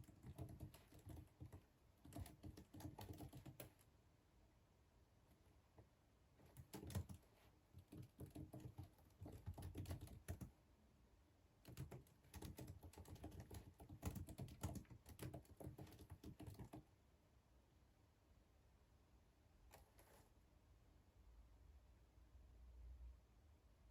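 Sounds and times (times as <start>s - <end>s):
typing on computer keyboard: 0.0s - 3.8s, 6.4s - 10.5s, 11.6s - 16.9s.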